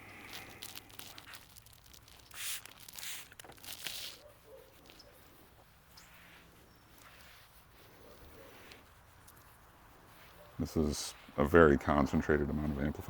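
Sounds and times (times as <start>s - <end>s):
trigger spray bottle spritzing: 2.1s - 4.2s.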